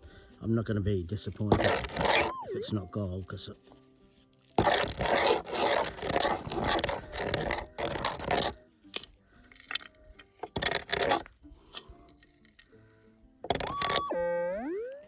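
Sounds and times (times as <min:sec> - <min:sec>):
digging tool scraping dirt: 0:01.3 - 0:02.8, 0:04.5 - 0:12.6.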